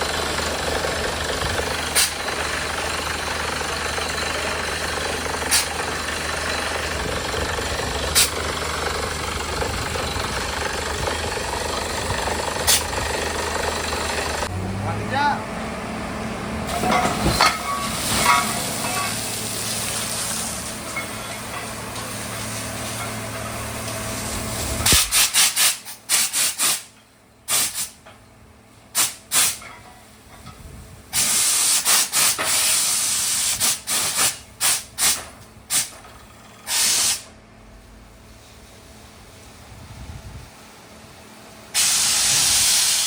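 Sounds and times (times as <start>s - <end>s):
drilling rig engine running: 0.0s - 43.0s
compressed air hissing: 5.5s - 5.8s, 8.2s - 8.4s, 24.8s - 26.9s, 27.5s - 28.0s, 29.0s - 29.6s, 31.2s - 36.0s, 36.7s - 37.3s, 41.7s - 43.0s.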